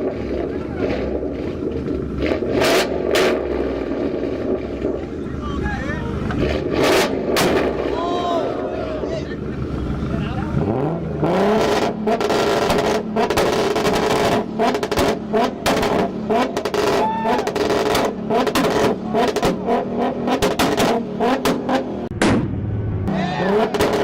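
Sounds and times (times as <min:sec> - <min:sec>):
car engine on launch limiter: 0:00.0 - 0:24.0
exhaust pops and bangs: 0:06.2 - 0:08.0, 0:11.6 - 0:24.0.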